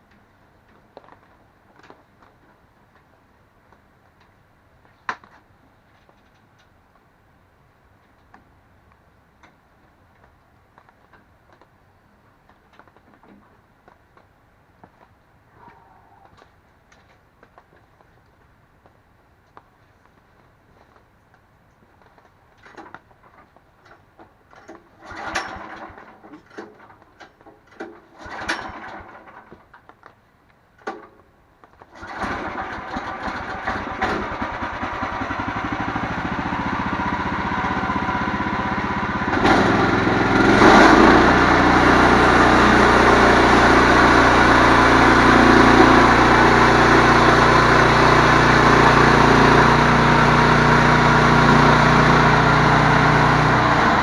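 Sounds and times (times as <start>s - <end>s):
tractor engine running: 24.5s - 27.0s, 27.8s - 29.7s, 31.9s - 54.0s
diesel engine cranking: 25.0s - 27.0s, 27.8s - 29.6s, 31.9s - 54.0s.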